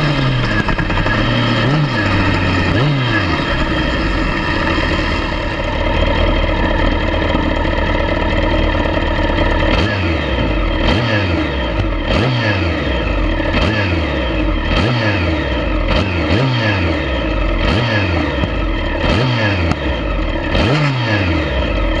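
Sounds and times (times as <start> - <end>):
exhaust backfiring cracks: 0.0 - 16.1
motorcycle engine revving: 0.0 - 22.0.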